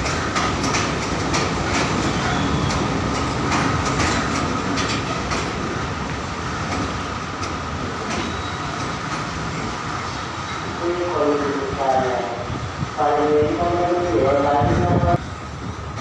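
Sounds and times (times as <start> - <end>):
wheels clicking over rails: 0.0 - 9.7
train running along track: 0.0 - 16.0.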